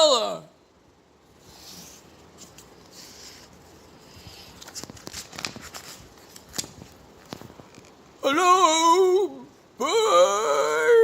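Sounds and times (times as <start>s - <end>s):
faint rustling with hiss: 1.1s - 8.2s.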